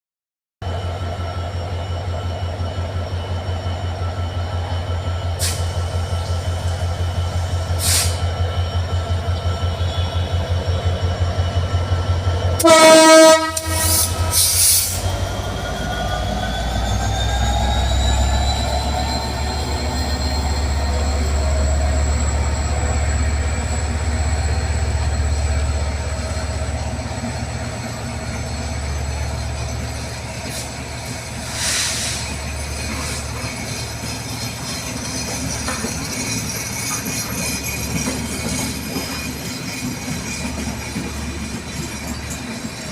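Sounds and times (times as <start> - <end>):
locomotive whine and rumble: 0.6 - 42.9
train horn blast: 12.6 - 14.6.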